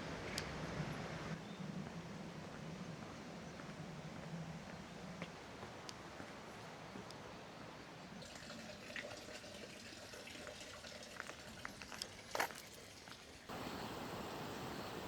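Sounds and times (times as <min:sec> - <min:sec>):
water trickling: 0:08.2 - 0:15.0
steady hiss: 0:13.5 - 0:15.0.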